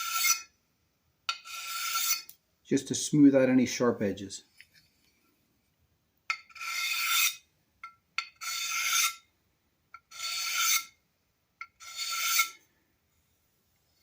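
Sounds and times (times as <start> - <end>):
file strokes on metal: 0.0 - 0.5, 1.3 - 2.4, 6.3 - 7.4, 8.2 - 9.2, 10.0 - 11.0, 11.6 - 12.7
file tapping metal: 1.3 - 2.4, 6.3 - 9.2, 11.6 - 12.6.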